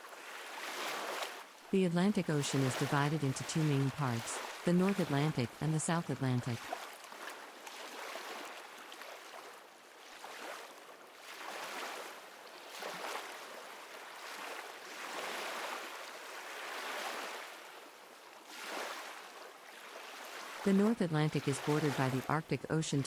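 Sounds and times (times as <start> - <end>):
ocean waves washing in: 0.8 - 6.8.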